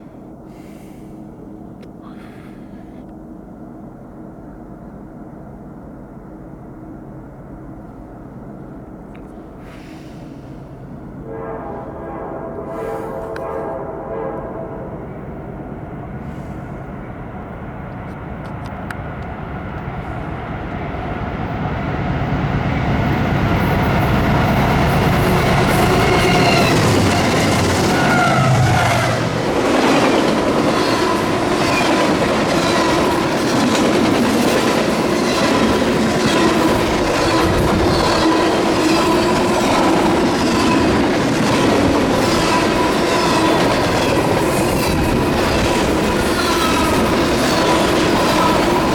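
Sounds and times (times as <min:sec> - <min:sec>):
train locomotives passing: 0:00.0 - 0:48.9
rush of wind: 0:14.6 - 0:48.9
train wheels clickety-clack: 0:17.8 - 0:48.9.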